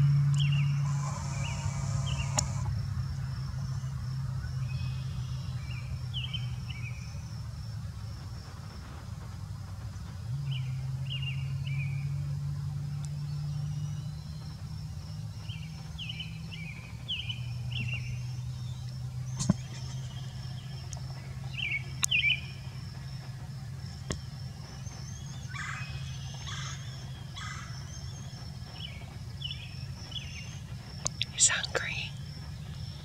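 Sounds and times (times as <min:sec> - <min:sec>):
steady low hum: 0:00.0 - 0:33.0
bird chirping: 0:00.4 - 0:02.7, 0:13.2 - 0:23.3, 0:24.0 - 0:33.0
faint high-pitched buzz: 0:00.6 - 0:02.8.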